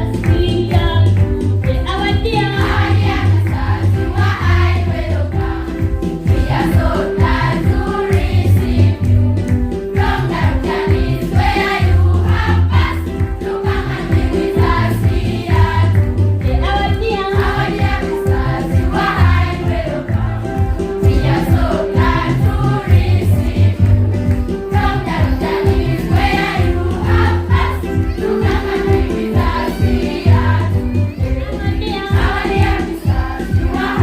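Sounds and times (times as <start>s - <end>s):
musical accompaniment: 0.0s - 34.0s
choir singing: 2.8s - 8.9s, 10.0s - 15.9s, 17.4s - 23.8s, 24.7s - 30.7s, 32.1s - 34.0s.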